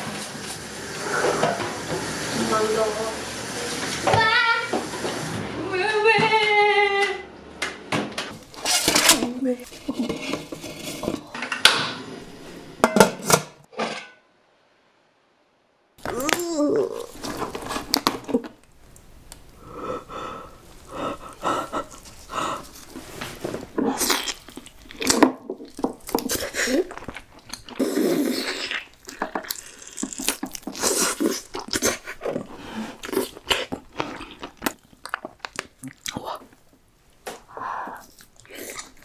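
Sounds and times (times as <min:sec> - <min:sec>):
person chewing food: 0:16.8 - 0:36.8, 0:37.4 - 0:39.0.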